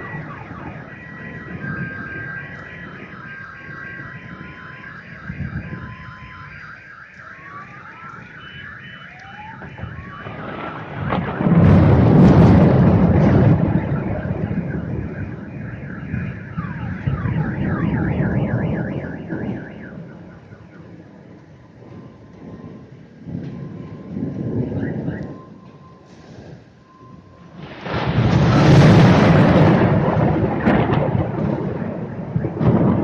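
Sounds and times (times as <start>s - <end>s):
car alarms sounding: 0.0s - 21.0s, 23.5s - 26.1s
thunder clap and rumble: 0.0s - 33.0s.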